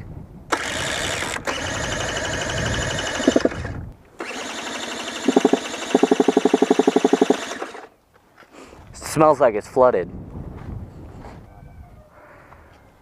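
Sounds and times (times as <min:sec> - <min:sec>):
electric starter cranking engine: 0:00.5 - 0:07.9.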